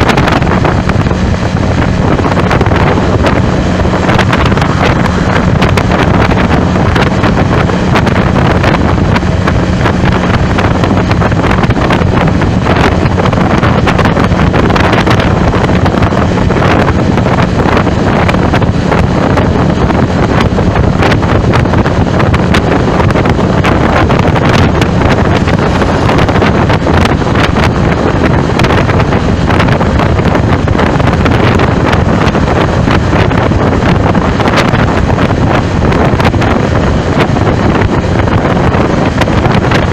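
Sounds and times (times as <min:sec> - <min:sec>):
low hum: 0:00.0 - 0:39.9
wind buffeting microphone: 0:00.0 - 0:39.9.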